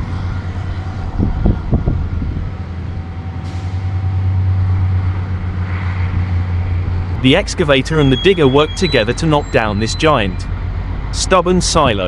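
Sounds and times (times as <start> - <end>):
excavator diesel engine humming: 0.0 - 12.0
short high-pitched sounds: 7.5 - 10.5.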